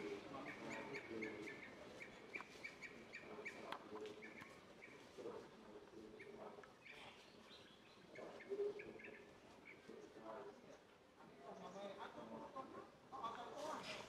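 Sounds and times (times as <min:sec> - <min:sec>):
faint bird chirps: 0:00.0 - 0:05.4.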